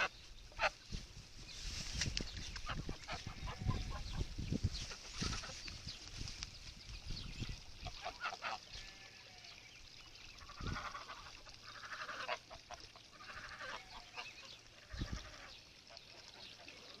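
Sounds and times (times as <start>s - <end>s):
farm animals calling: 0.0s - 0.9s, 2.4s - 5.9s, 7.4s - 9.6s, 10.3s - 17.0s.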